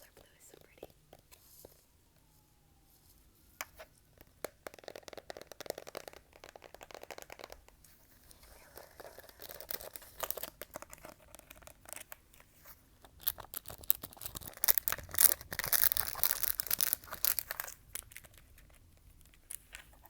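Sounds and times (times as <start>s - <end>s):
crinkly rubbing: 2.9s - 20.0s.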